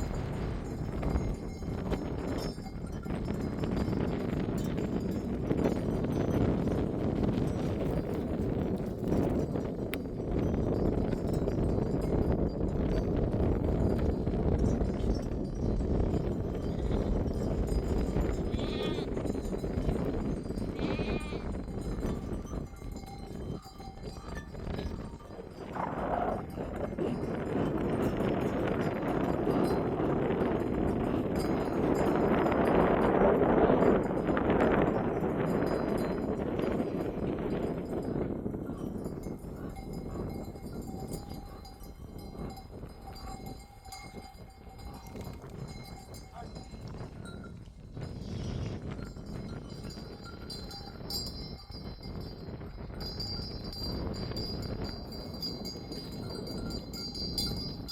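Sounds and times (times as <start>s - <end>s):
sheep bells clinking: 0.0s - 57.9s
sheep bleating: 18.4s - 19.2s, 20.7s - 21.5s.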